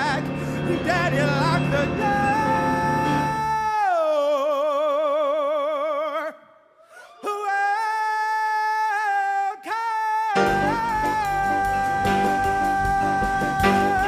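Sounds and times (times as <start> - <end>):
band playing: 0.0 - 3.7, 10.4 - 14.0
solo singer with vibrato: 0.0 - 14.0.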